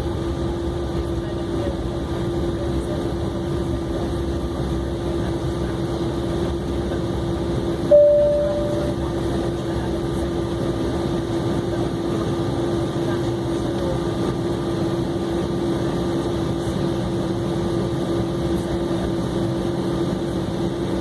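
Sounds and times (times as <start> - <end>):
airliner cabin hum: 1.0 - 20.2.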